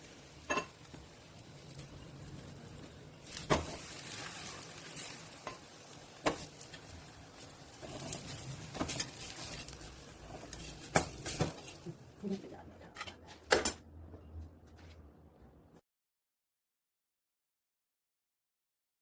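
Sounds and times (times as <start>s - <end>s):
flatbread sizzling in oil: 0.0s - 12.0s.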